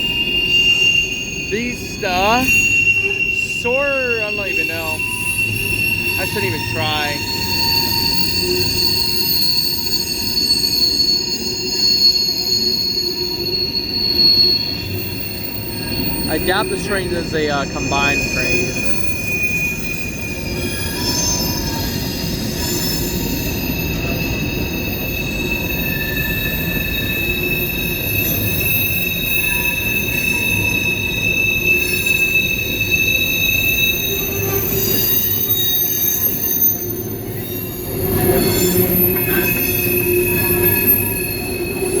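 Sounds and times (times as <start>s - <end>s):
rumbling roll of train: 0.0s - 42.0s
train wheels squealing: 0.0s - 42.0s.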